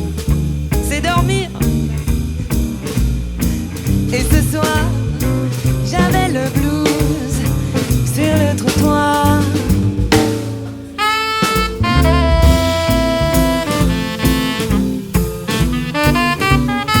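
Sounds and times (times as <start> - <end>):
double bass: 0.0 - 17.0
drum kit: 0.0 - 17.0
swing jazz band playing: 0.0 - 17.0
gliding horn line: 11.0 - 17.0.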